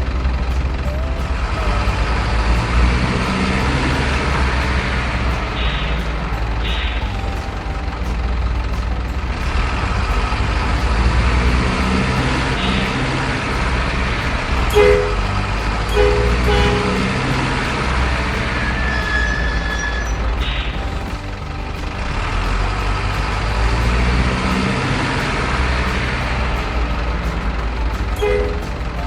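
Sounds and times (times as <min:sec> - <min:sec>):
truck engine running: 0:00.0 - 0:29.0
two-tone horn toots: 0:10.8 - 0:21.2, 0:28.0 - 0:29.0.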